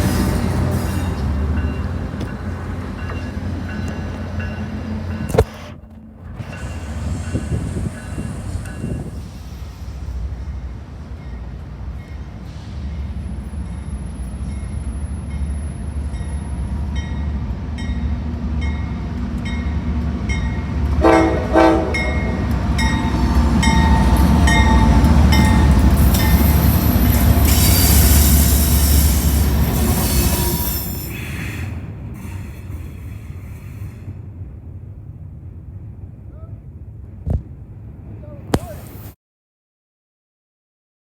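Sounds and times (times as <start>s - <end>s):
diesel locomotive rumble: 0.0s - 38.1s
train wheels squealing: 6.4s - 10.2s, 22.8s - 34.3s
train horn blasts: 21.0s - 22.5s.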